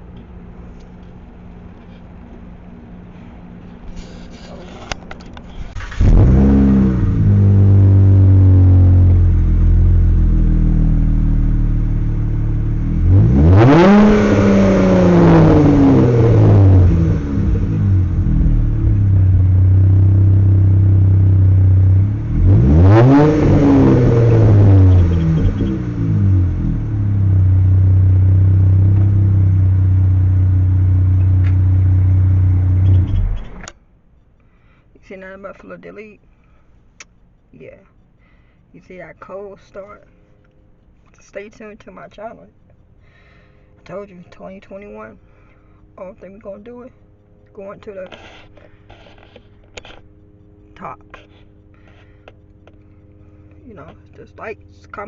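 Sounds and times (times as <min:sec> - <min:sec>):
car engine starting and revving: 0:05.6 - 0:33.7.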